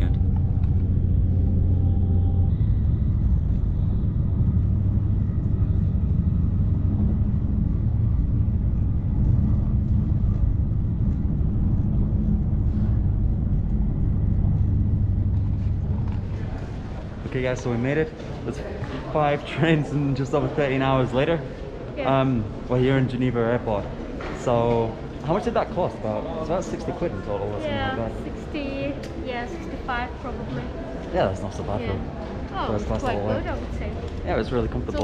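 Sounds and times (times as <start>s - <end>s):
train rumble inside carriage: 0.0s - 17.2s
constant low hum: 0.0s - 35.0s.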